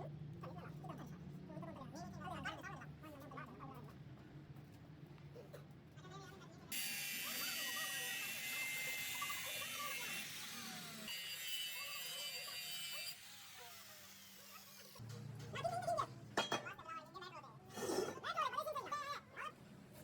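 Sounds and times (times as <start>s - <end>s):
high-pitched metalworking buzzing: 6.7s - 15.2s.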